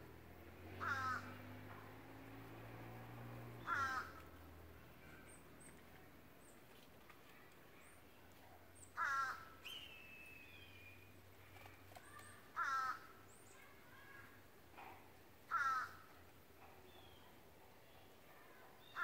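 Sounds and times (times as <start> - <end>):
bird calling loudly: 3.6 - 4.2
small birds chipping and whistling: 8.7 - 12.5.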